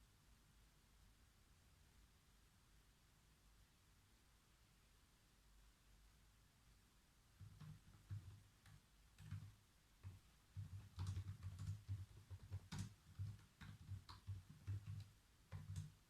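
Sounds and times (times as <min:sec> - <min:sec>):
typing on computer keyboard: 0:07.4 - 0:16.0.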